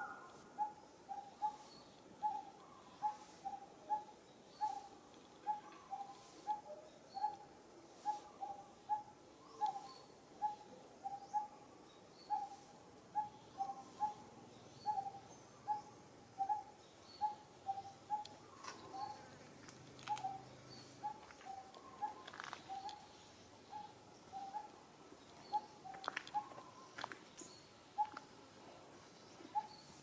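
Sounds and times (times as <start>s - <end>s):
faint clicks: 19.6s - 20.4s.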